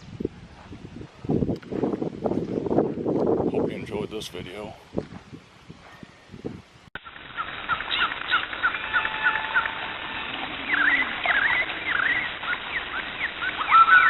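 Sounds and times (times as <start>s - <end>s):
birds chirping: 7.0s - 14.0s.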